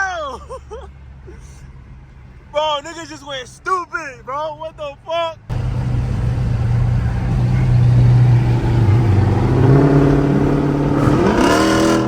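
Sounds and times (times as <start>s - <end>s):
car engine droning and revving: 5.5s - 12.0s.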